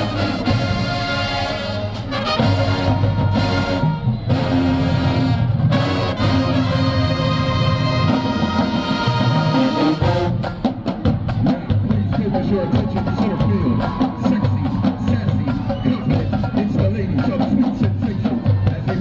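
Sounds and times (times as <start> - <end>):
marching band brass chords: 0.0 - 19.0.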